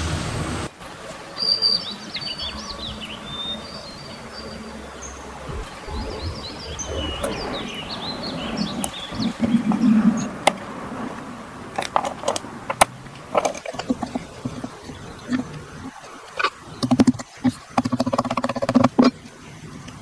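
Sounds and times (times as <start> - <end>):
faint low rumble: 5.5 - 9.7.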